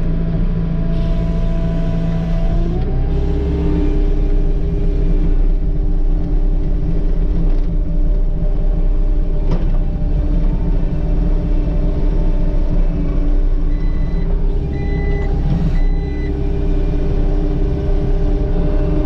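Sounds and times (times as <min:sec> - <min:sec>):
diesel engine running: 0:00.0 - 0:19.0
backup alarm beeps: 0:13.7 - 0:16.7.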